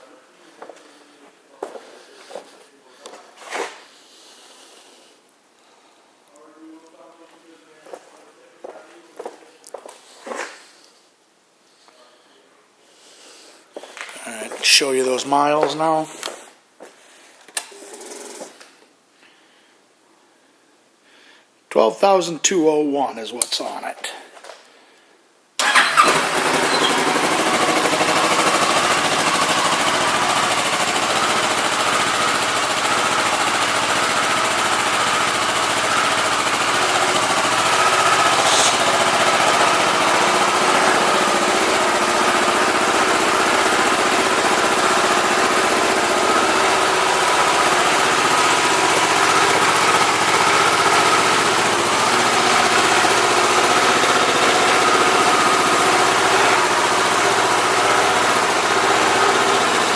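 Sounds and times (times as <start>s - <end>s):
motorcycle engine starting and idling: 13.9s - 16.3s, 17.6s - 18.6s, 25.6s - 59.9s.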